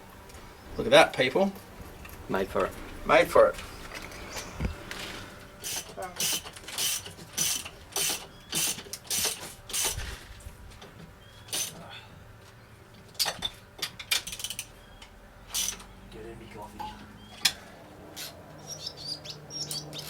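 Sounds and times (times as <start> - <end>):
ratchet spanner clicking: 5.6 - 10.0, 15.5 - 15.9.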